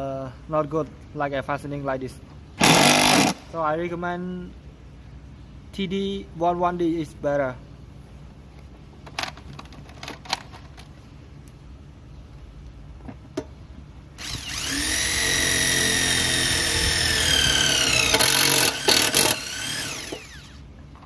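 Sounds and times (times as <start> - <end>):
impact driver driving screw: 2.6 - 3.4, 14.2 - 20.6.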